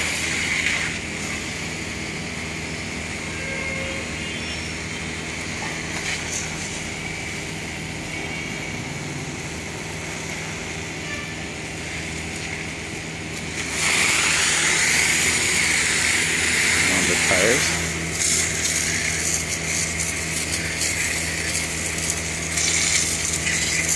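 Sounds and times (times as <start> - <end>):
water spray hissing: 0.0 - 1.5, 11.8 - 23.9
pump motor humming: 0.0 - 23.9.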